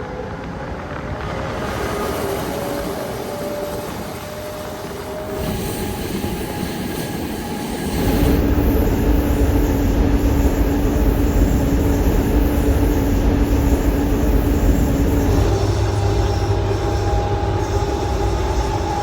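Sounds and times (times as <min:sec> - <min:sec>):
train wheels rumbling: 0:00.0 - 0:19.0
steady hum: 0:05.4 - 0:19.0.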